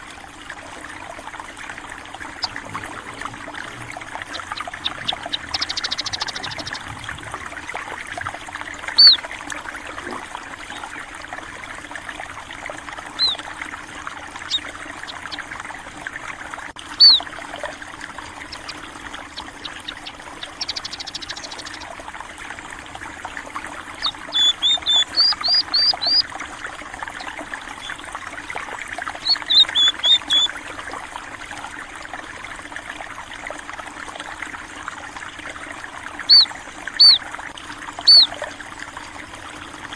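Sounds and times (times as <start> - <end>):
water trickling: 0.0 - 39.9
sparrows chirping: 2.3 - 6.9, 9.0 - 9.2, 13.2 - 13.4, 14.4 - 15.5, 17.0 - 17.3, 18.4 - 21.9, 24.0 - 26.2, 29.1 - 30.5, 36.3 - 37.2, 38.0 - 38.3.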